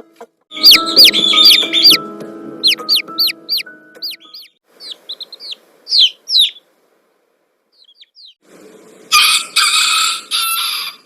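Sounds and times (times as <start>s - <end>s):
chicks peeping: 0.5s - 6.7s, 7.8s - 8.4s.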